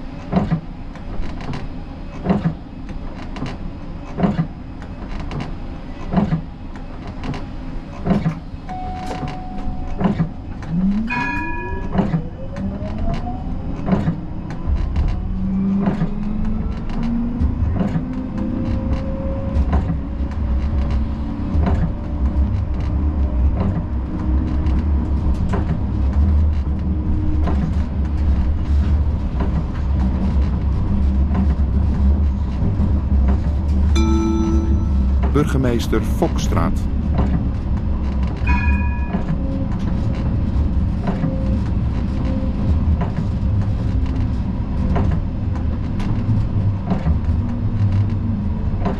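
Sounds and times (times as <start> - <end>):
wheels rumbling on rails: 0.0 - 48.9
chime: 8.7 - 10.3, 34.0 - 35.6
short beep: 8.7 - 10.4, 34.0 - 36.7.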